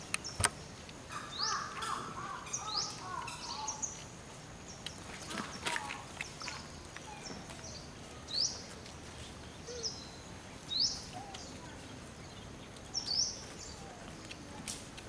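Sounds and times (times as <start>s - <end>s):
bird chirping: 0.0s - 14.5s
steady outdoor hiss: 0.0s - 15.0s
faint lower bird calls: 1.1s - 4.1s, 4.8s - 14.6s.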